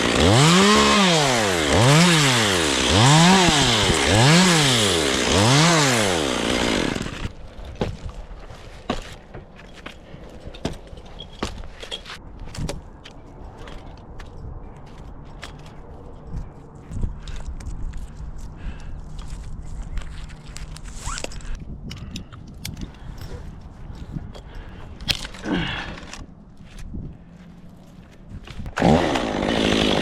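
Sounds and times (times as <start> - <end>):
chainsaw running: 0.0 - 7.4, 28.7 - 30.0.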